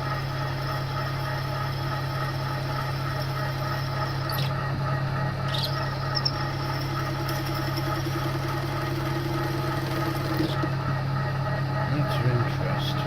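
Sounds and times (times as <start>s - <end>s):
milling machine running: 0.0s - 13.0s
drill bit squealing in metal: 5.5s - 6.9s.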